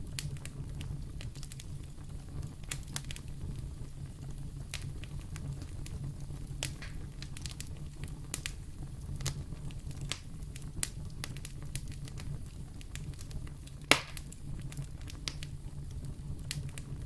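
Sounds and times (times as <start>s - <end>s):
fire crackling and popping: 0.0s - 17.0s
wood fire rumbling: 0.0s - 17.0s.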